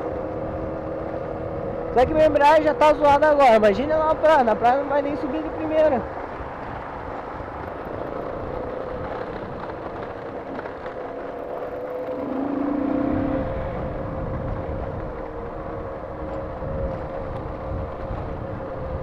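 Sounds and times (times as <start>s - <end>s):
motorcycle engine running: 0.0s - 19.0s
wind and road noise: 0.0s - 19.0s
second lower engine note: 10.5s - 19.0s.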